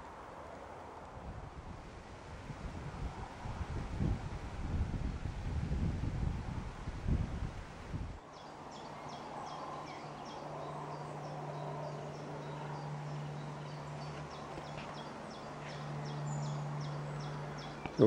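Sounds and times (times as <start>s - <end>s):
small birds chirping: 8.2s - 18.0s.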